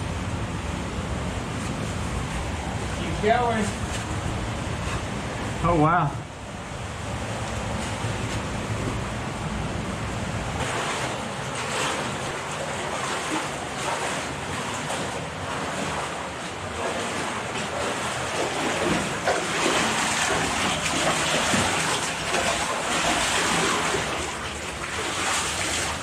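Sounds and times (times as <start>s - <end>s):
water rushing in stream: 10.5s - 26.0s.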